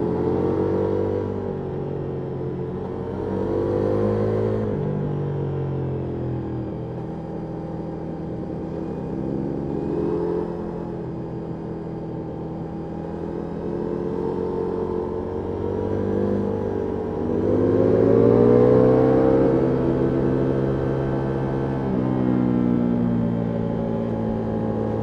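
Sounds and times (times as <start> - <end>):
motorcycle engine revving: 14.0 - 22.0.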